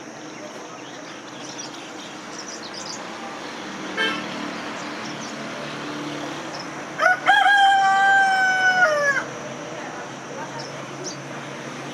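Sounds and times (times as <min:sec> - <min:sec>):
outdoor background hiss: 0:00.0 - 0:11.9
small birds chirping: 0:00.2 - 0:03.2
rooster crowing: 0:07.0 - 0:09.3.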